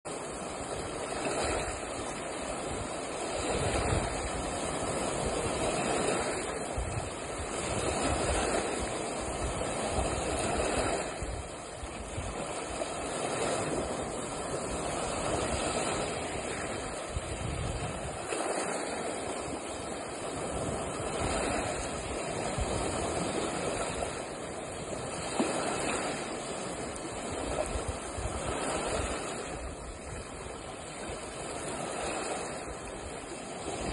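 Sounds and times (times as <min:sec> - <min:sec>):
lake waves washing against shore: 0:00.0 - 0:33.9
wind buffeting microphone: 0:00.1 - 0:33.9.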